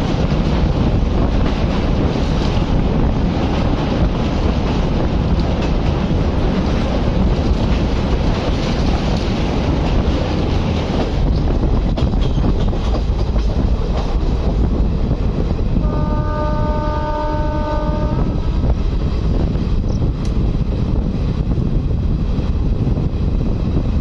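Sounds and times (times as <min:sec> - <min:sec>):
rushing air: 0:00.0 - 0:24.0
train wheels rumbling on rail: 0:00.0 - 0:24.0
train horn blast: 0:15.8 - 0:18.6.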